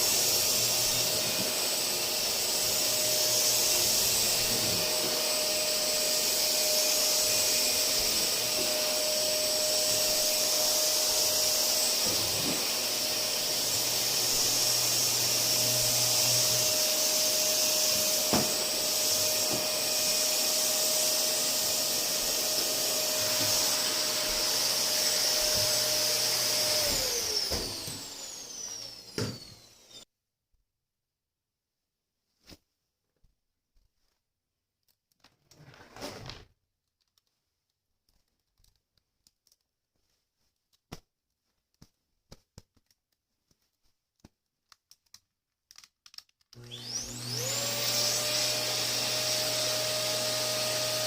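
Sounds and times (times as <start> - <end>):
vacuum cleaner running: 0.0 - 30.0, 46.6 - 51.0.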